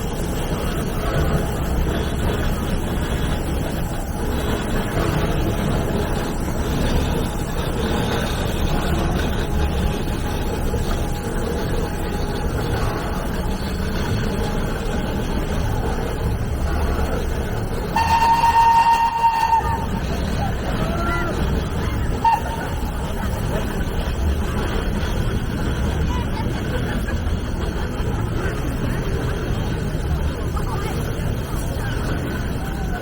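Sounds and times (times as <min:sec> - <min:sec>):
steam locomotive rumble and hiss: 0:00.0 - 0:33.0
steam whistle: 0:17.8 - 0:21.1, 0:21.7 - 0:23.2.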